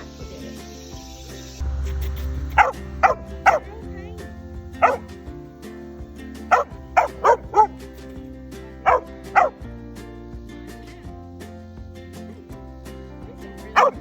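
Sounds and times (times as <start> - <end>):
background music with held notes: 0.0 - 14.0
dog barking in yips: 2.6 - 3.7, 4.8 - 5.1, 6.5 - 7.8, 8.8 - 9.6, 13.8 - 14.0.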